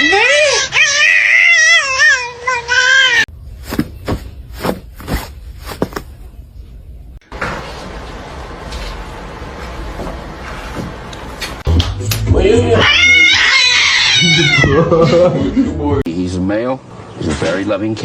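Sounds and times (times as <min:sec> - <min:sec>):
cat meowing: 0:00.0 - 0:03.3, 0:12.8 - 0:14.8.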